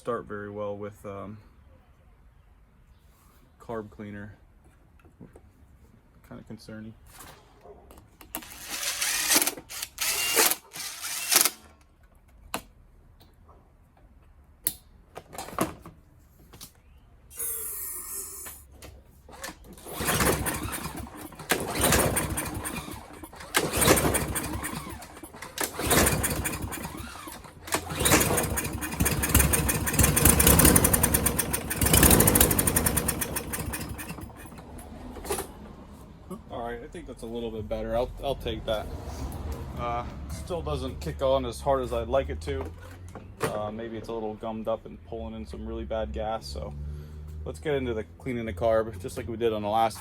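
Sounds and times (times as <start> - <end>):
lawn mower engine cranking: 8.3 - 11.8, 19.3 - 35.6
lawn mower engine running unevenly: 19.8 - 34.7.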